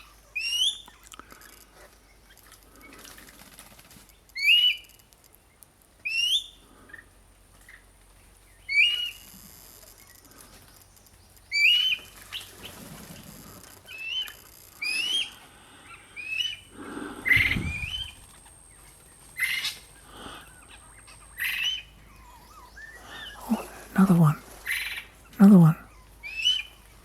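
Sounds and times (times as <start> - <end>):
low rumbling noise: 16.6 - 21.4.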